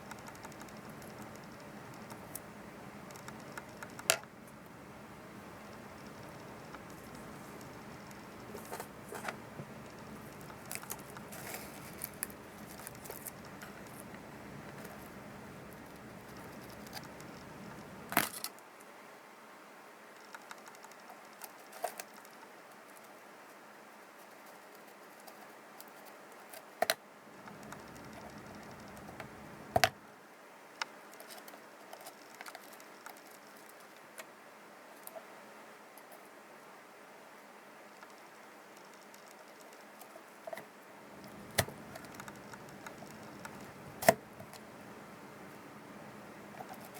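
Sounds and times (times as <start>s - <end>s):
faint steady hiss: 0.0s - 46.9s
hands handling radio parts: 6.2s - 15.2s, 40.5s - 44.7s
small objects clicking and tapping: 41.2s - 44.6s.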